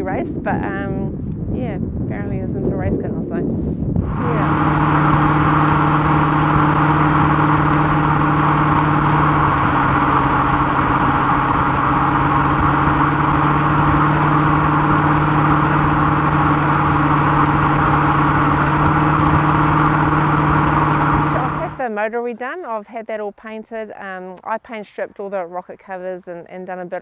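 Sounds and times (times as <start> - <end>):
wind and road noise: 0.0 - 22.8
car engine drone: 3.9 - 21.8.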